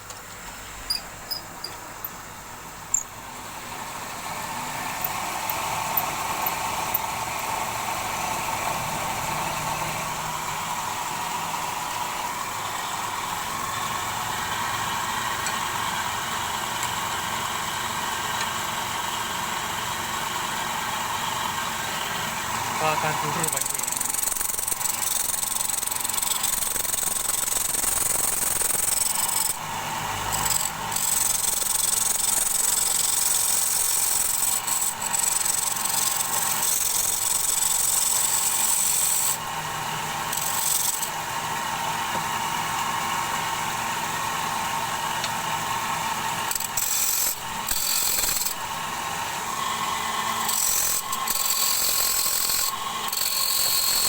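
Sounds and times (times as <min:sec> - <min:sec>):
lathe tool cutting wood: 0:13.0 - 0:39.4, 0:40.0 - 0:42.4, 0:45.6 - 0:54.0.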